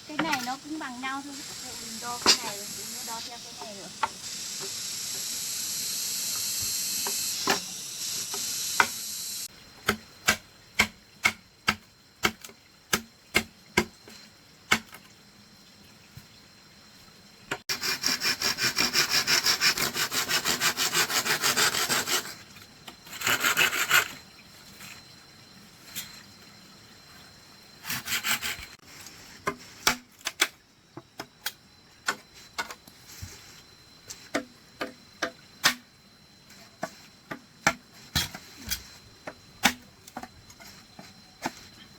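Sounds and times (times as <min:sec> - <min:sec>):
loud high hiss: 0:00.6 - 0:09.5
hand saw cutting bamboo: 0:17.7 - 0:22.4, 0:23.1 - 0:24.2, 0:27.8 - 0:28.8.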